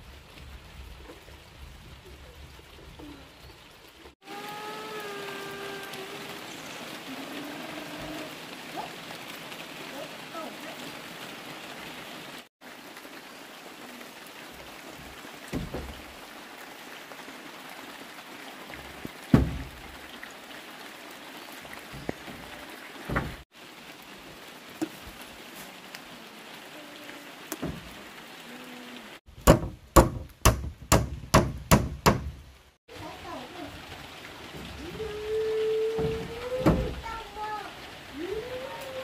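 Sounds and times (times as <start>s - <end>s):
steady rain falling: 0.0s - 39.0s
quick run of loud knocks: 29.4s - 32.4s.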